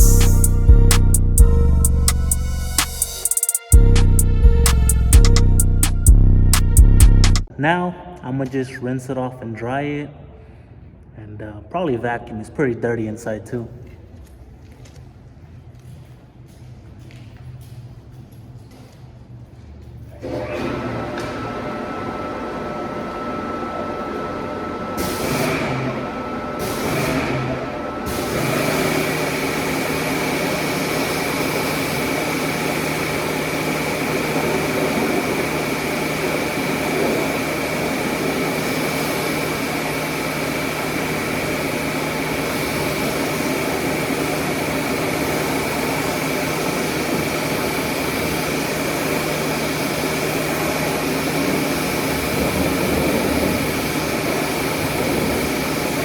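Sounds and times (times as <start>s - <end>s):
car wash motor running: 0.0s - 7.5s, 20.2s - 56.0s
high whine: 0.0s - 7.5s, 22.6s - 56.0s
low hum: 0.0s - 7.5s.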